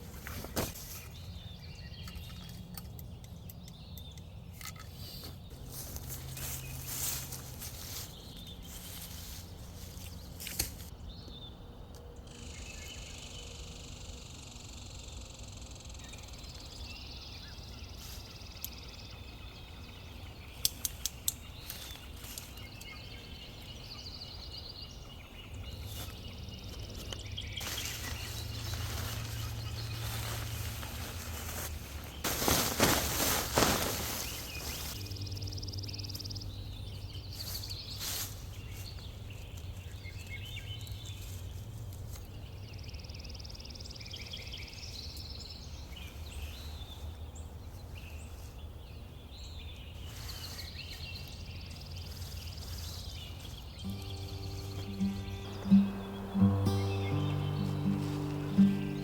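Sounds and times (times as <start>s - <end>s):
low hum: 53.9s - 59.0s.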